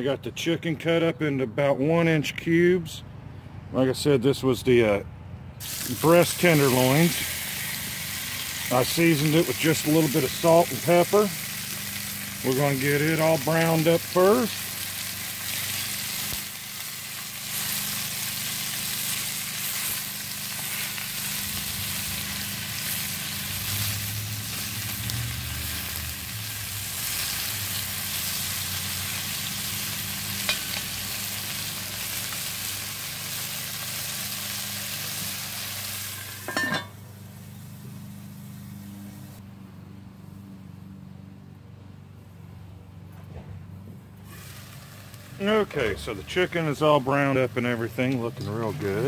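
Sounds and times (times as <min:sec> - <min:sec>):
chicken sizzling in hot oil: 0:05.6 - 0:39.4, 0:44.3 - 0:49.0
cast iron lid clanking: 0:36.1 - 0:37.0.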